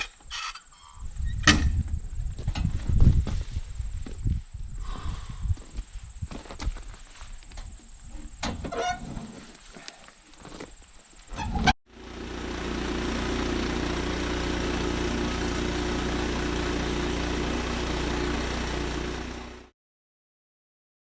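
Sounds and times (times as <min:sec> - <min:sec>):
sawmill engine running: 0:11.9 - 0:19.7.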